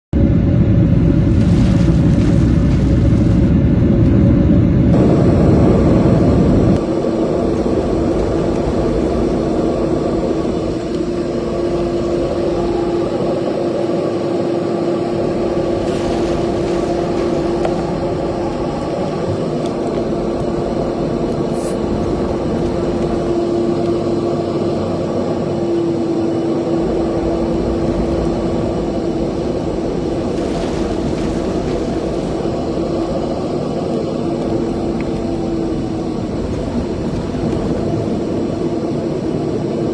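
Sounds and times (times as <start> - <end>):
engine drone: 0.0 - 39.9
heavy low rumble: 0.1 - 39.9.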